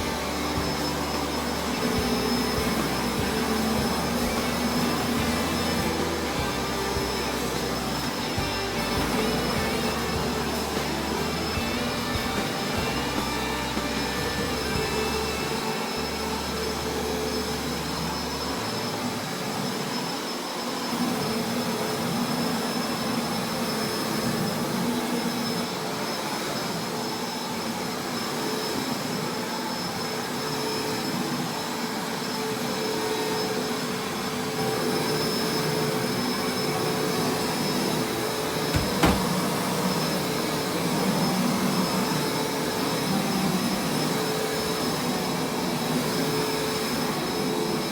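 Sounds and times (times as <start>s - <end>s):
carpet-washing machine running: 0.0s - 18.3s, 36.4s - 40.3s
brief knock: 38.7s - 39.4s.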